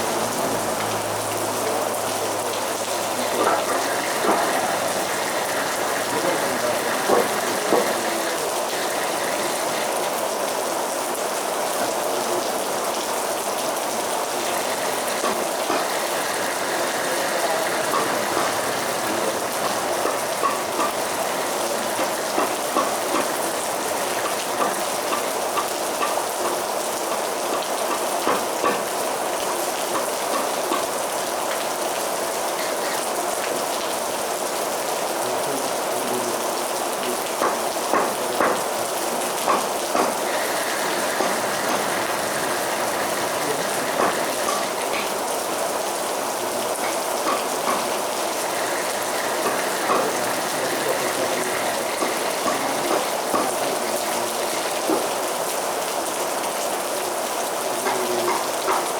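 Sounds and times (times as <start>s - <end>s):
heavy rain falling: 0.0s - 58.9s
drops ticking on hard surface: 14.4s - 26.6s, 39.4s - 45.2s, 46.8s - 55.1s.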